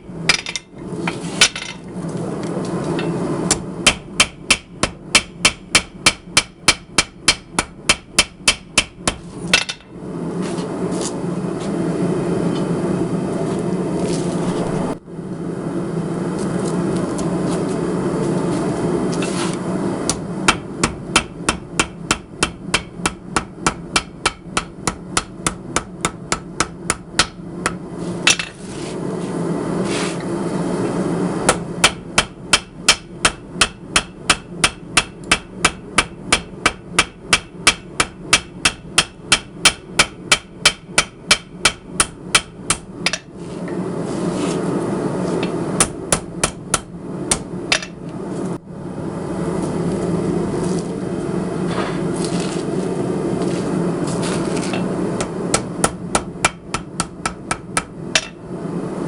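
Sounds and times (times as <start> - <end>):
hammer striking hot steel: 0.0 - 1.8, 2.9 - 10.0, 20.1 - 28.6, 31.4 - 43.4, 45.4 - 48.0, 54.6 - 58.5.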